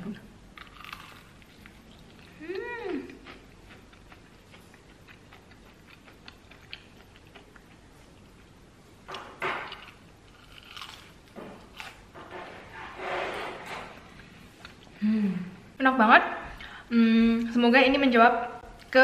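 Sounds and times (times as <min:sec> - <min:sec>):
person chewing crunchy food: 0:00.6 - 0:02.4, 0:03.1 - 0:08.6, 0:09.6 - 0:12.1.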